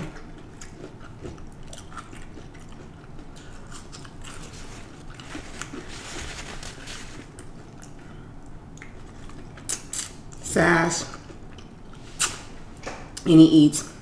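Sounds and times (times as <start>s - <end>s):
person chewing crunchy food: 0.0s - 10.4s
wet mouth clicks: 12.2s - 12.4s.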